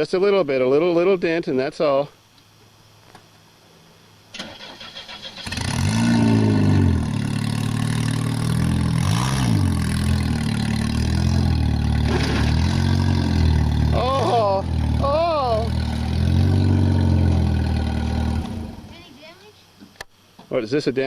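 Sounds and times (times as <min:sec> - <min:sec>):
car starter cranking: 0:04.3 - 0:05.8
car engine revving: 0:04.7 - 0:19.0.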